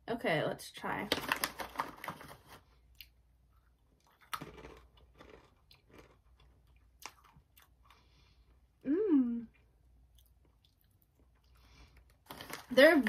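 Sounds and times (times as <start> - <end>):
person chewing crunchy food: 2.8 - 8.7, 9.6 - 12.6.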